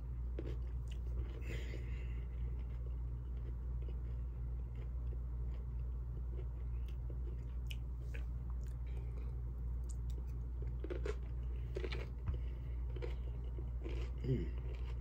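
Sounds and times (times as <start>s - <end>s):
steady low hum: 0.0s - 15.0s
person chewing: 0.3s - 15.0s.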